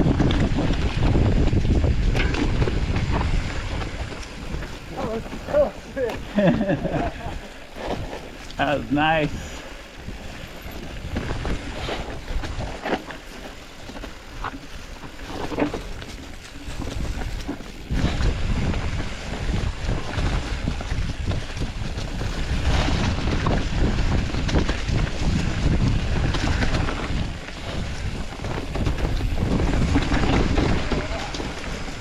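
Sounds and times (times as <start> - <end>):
bike knocks and rattles: 0.0 - 6.8, 15.2 - 32.0
bike tyre noise on dirt: 0.0 - 32.0
wind buffeting microphone: 0.0 - 32.0.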